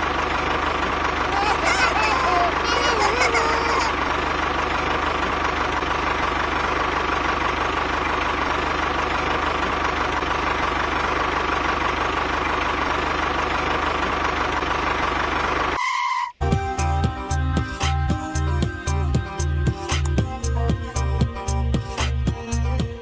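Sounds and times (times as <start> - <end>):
tractor engine idling: 0.0 - 23.0.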